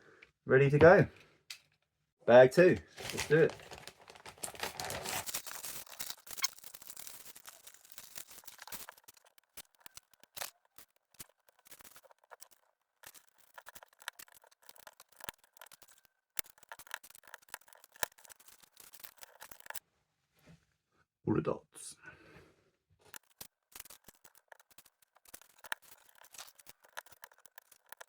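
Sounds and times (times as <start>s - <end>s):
plastic bricks clicking together: 3.3s - 19.8s, 23.1s - 28.0s.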